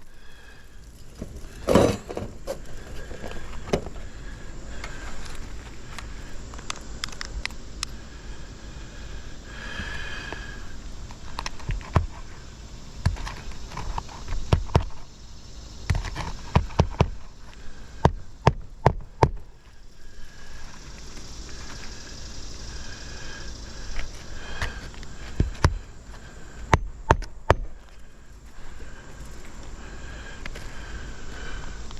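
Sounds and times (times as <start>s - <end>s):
knocks and taps on roof shingles: 14.3s - 15.0s, 15.9s - 17.3s.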